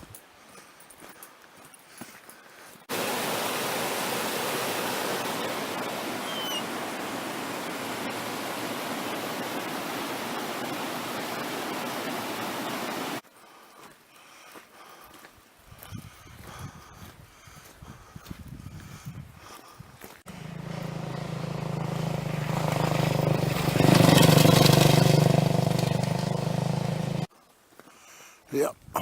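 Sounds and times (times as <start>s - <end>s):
creek water rushing: 2.9s - 13.2s, 20.3s - 27.3s
high chirp: 6.2s - 6.6s.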